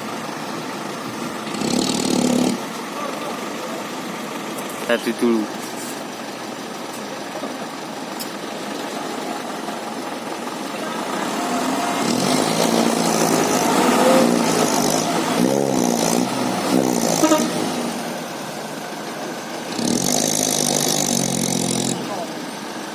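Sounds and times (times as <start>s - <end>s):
vehicle engine revving: 1.2s - 4.0s, 10.7s - 18.9s, 19.5s - 22.6s.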